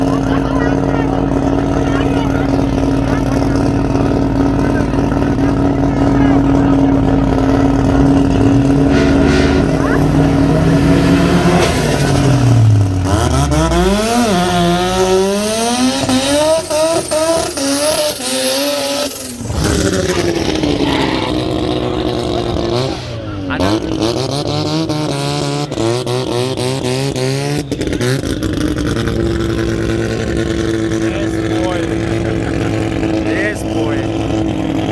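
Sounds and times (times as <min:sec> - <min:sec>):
rotary engine at full throttle: 0:00.0 - 0:34.9.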